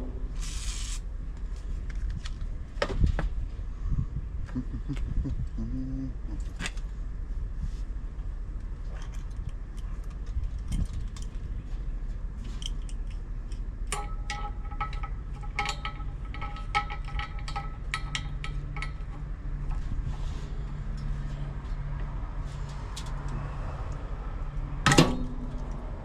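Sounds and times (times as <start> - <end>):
steady low hum: 0.0 - 26.0
metal tools clinking: 13.9 - 19.2.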